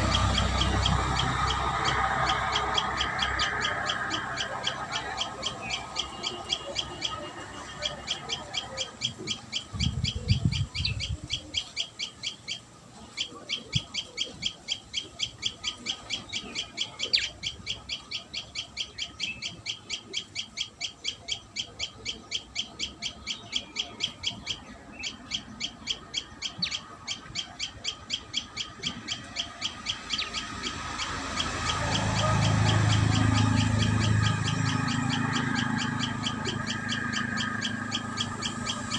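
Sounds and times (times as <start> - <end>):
bird chirping high notes: 0.0 - 38.9.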